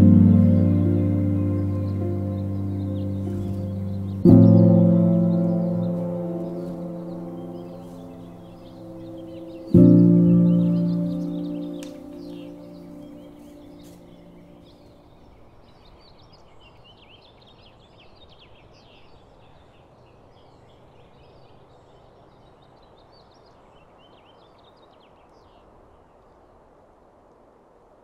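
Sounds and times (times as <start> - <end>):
ringing ambient music tone: 0.0 - 14.6
songbirds chirping: 0.0 - 26.6
outdoor background hiss: 0.0 - 28.0.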